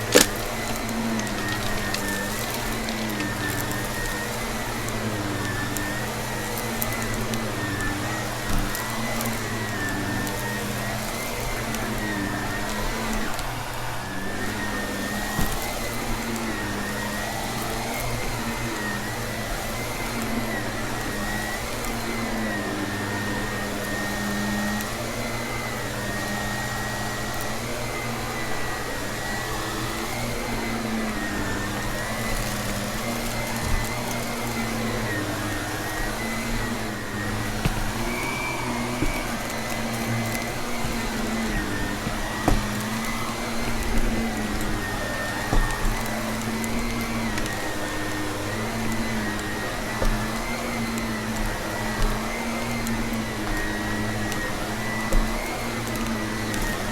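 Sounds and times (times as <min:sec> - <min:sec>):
debris ticks being sucked up: 0:00.0 - 0:04.2
vacuum cleaner running: 0:00.0 - 0:56.9.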